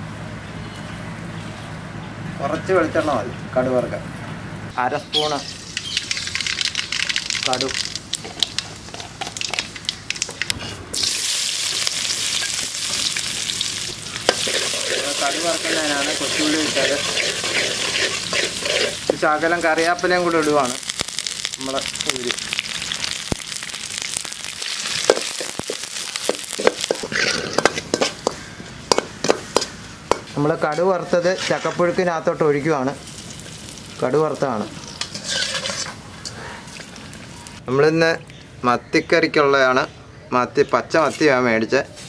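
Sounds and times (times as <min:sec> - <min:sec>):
shallots sizzling in oil: 0:05.1 - 0:36.2
mustard seeds popping in oil: 0:05.3 - 0:30.4
ladle stirring against pan: 0:14.2 - 0:19.3, 0:24.6 - 0:31.9, 0:34.8 - 0:37.0.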